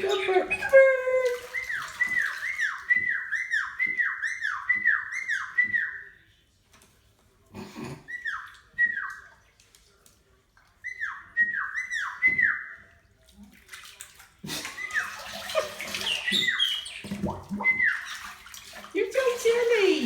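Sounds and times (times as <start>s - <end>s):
parrot whistling falling notes: 0.0s - 6.1s, 16.1s - 18.1s.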